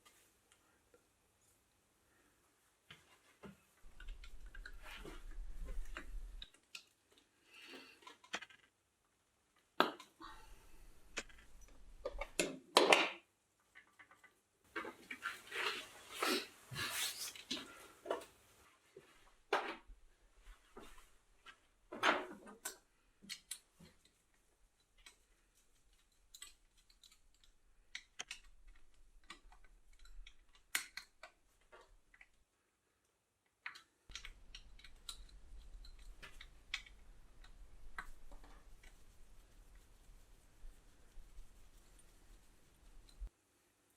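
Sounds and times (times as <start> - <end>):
faint irregular clicks: 2.9 - 8.8, 10.8 - 12.5, 22.5 - 43.3.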